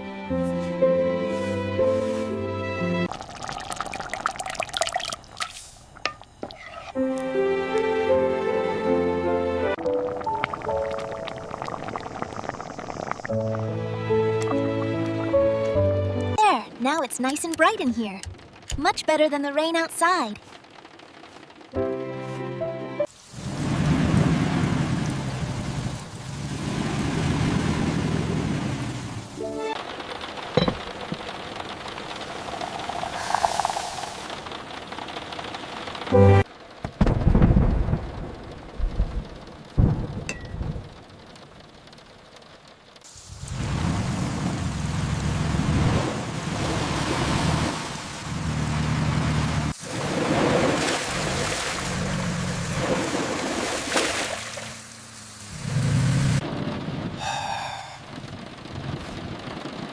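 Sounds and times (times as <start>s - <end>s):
heavy rain: 20.4s - 21.8s, 23.1s - 59.9s
thunder rumbling: 30.4s - 41.6s
low thunder: 37.0s - 41.0s.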